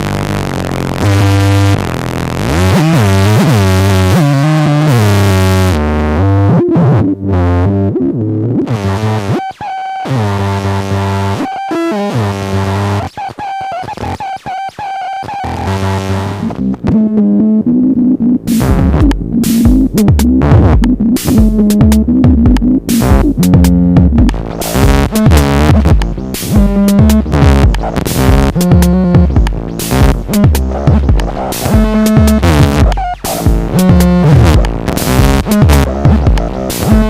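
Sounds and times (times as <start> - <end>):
square-wave synth drone: 0.0 - 13.6, 14.8 - 21.4
choppy gated synth notes: 0.0 - 37.0.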